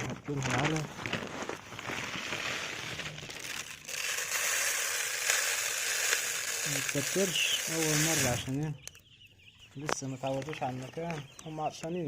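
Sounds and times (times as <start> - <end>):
grain feed pouring into feeder: 1.8 - 8.6.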